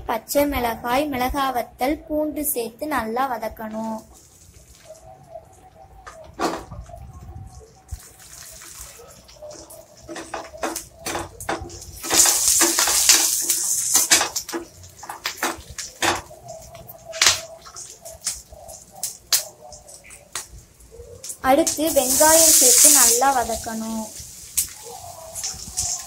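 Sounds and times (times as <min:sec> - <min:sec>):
food sizzling in oil: 0:07.6 - 0:26.0
loud hiss: 0:11.9 - 0:14.6, 0:21.7 - 0:26.0.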